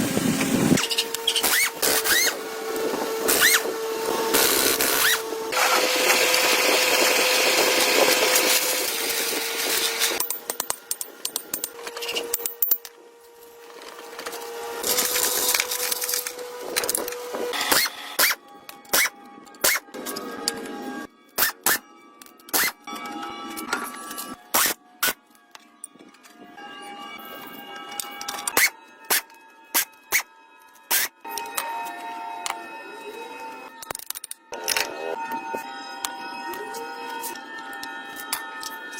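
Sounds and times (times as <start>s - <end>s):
power tool motor whine: 0.0s - 21.8s.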